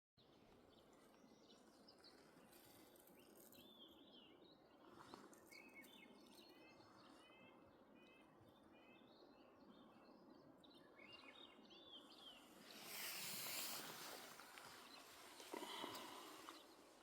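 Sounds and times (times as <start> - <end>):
background hiss: 12.0 - 17.0.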